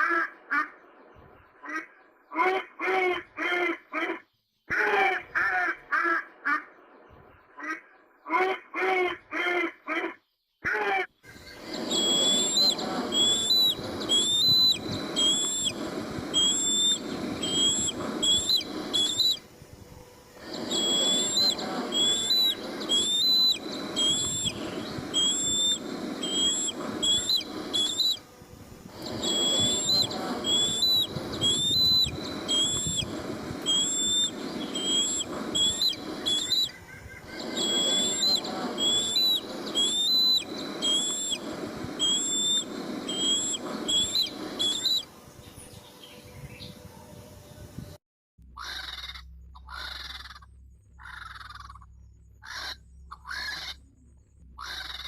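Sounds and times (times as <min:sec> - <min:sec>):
background hiss: 0:11.2 - 0:47.9
bird whistling high note: 0:11.4 - 0:19.5, 0:20.4 - 0:28.3, 0:28.9 - 0:45.1.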